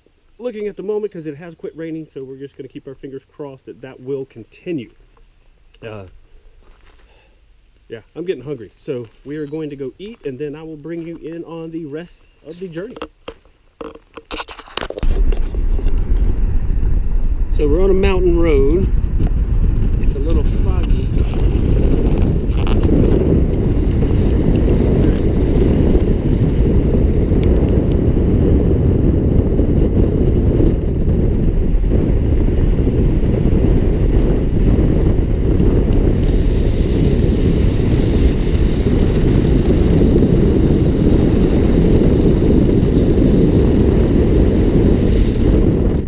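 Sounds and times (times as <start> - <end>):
car road and engine rumble: 14.9 - 45.9.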